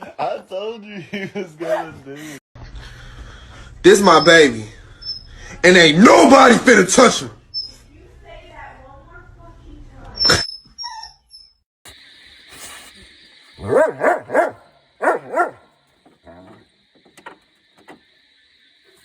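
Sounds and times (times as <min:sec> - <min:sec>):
dog barking: 0:13.6 - 0:15.7.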